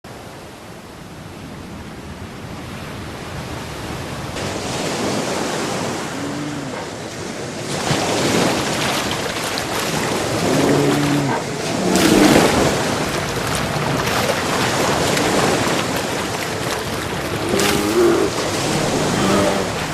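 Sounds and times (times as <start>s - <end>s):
sea waves washing and splashing: 0.1s - 19.9s
wind on microphone: 4.0s - 19.9s.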